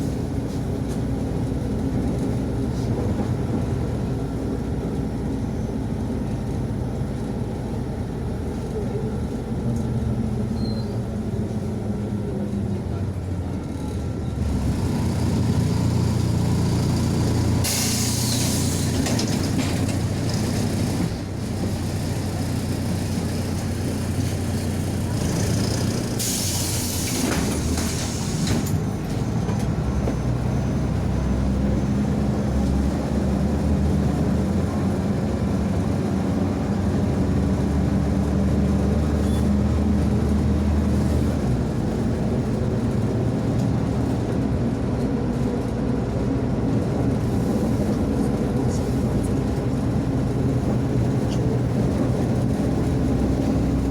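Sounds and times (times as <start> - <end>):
bus diesel engine drone: 0.0 - 53.9
compressed air hiss: 17.6 - 18.9.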